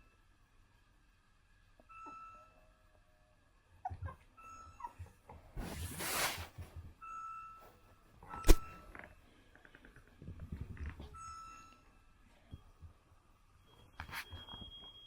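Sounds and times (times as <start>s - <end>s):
puppy whimpering: 3.8s - 5.2s.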